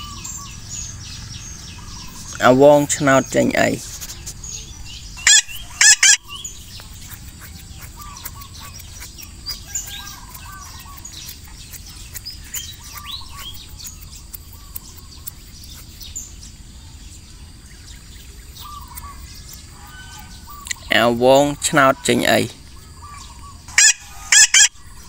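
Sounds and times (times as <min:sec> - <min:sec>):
loud wavering bird cries: 0:00.0 - 0:02.8, 0:03.5 - 0:11.4, 0:18.5 - 0:25.0
birds chirping: 0:00.0 - 0:25.0
outdoor ambience hiss: 0:00.0 - 0:25.0.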